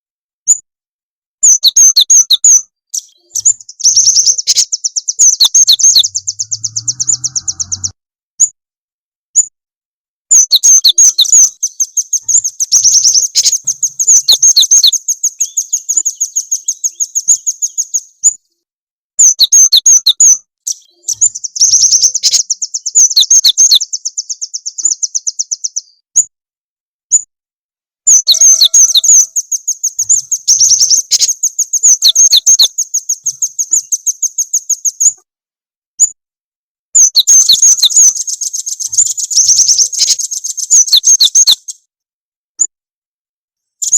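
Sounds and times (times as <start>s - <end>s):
songbird trilling: 1.4s - 8.0s, 10.3s - 18.4s, 19.2s - 26.0s, 28.1s - 35.2s, 37.0s - 41.8s.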